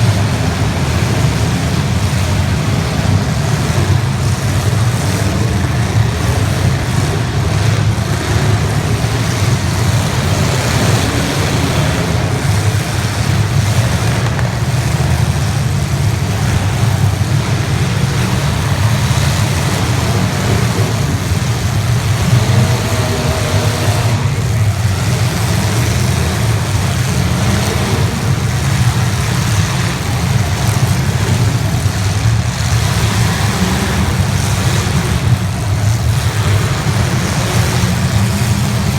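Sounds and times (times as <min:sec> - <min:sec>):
car engines rumbling together: 0:00.0 - 0:38.9.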